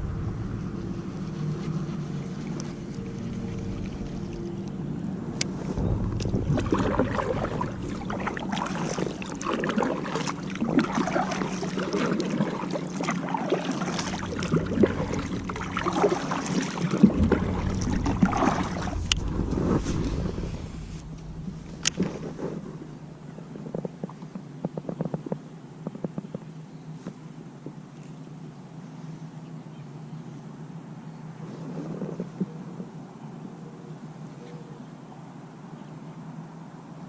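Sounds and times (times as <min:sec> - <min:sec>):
water splashing around kayak: 0:00.0 - 0:27.7
low steady hum: 0:00.0 - 0:31.6.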